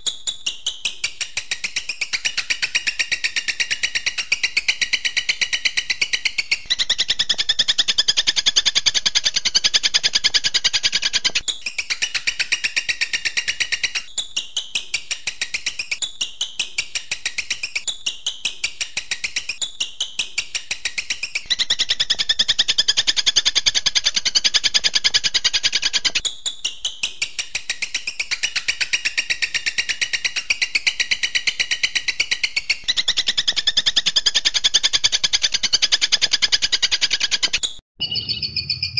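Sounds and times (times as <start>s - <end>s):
falling bird song phrases: 36.7s - 38.9s.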